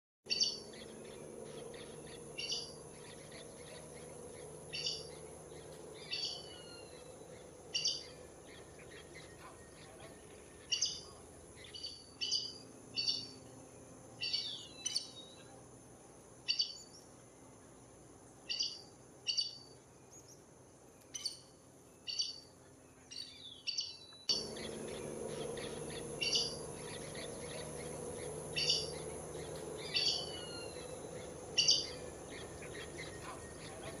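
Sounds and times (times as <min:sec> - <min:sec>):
bird calling high notes: 0:24.3 - 0:34.0.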